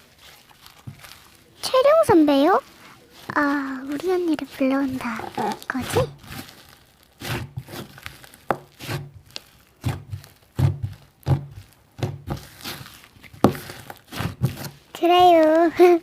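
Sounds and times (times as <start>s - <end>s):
slime squishing and popping: 0.0s - 15.5s
dull thuds: 7.2s - 14.8s.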